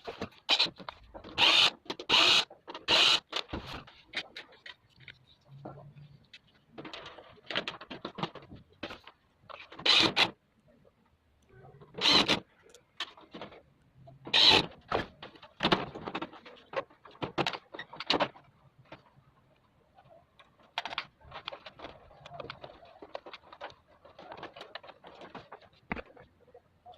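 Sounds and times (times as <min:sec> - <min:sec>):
plastic and metal parts clicking: 0:00.0 - 0:10.4, 0:20.4 - 0:26.3.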